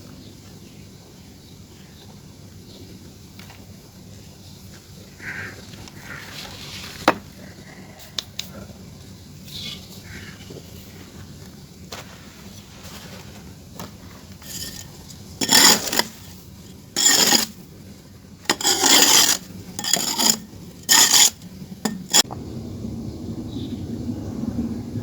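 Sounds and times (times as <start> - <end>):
gritty scraping on crumbly material: 5.2 - 7.8, 9.4 - 17.8, 18.4 - 22.3.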